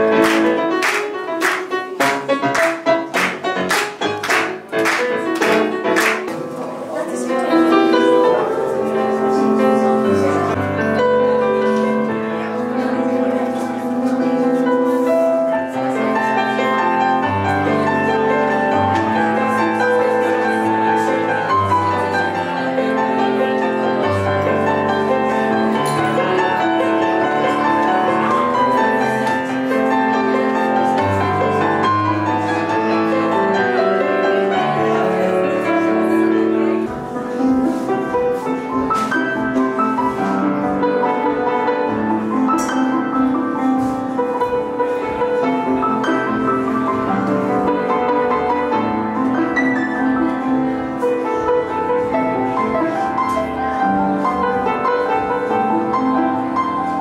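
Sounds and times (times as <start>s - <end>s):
piano playing pop songs: 0.0s - 57.0s.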